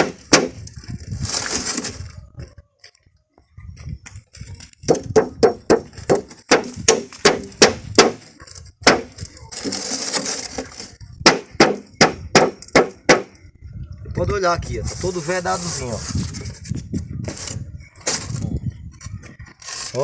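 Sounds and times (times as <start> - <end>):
hammer blows on nails: 0.0 - 0.6, 4.9 - 8.3, 8.9 - 9.2, 11.2 - 13.4
scrape: 0.1 - 2.2, 8.2 - 11.0, 14.8 - 20.0.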